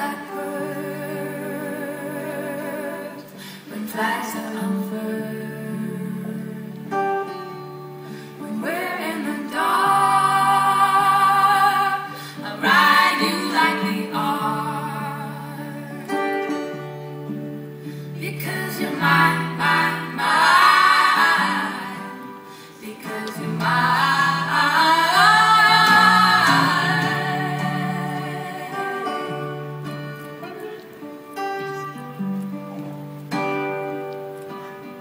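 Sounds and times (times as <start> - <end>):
women singing in harmony: 0.0 - 7.3, 8.1 - 16.6, 18.0 - 30.0.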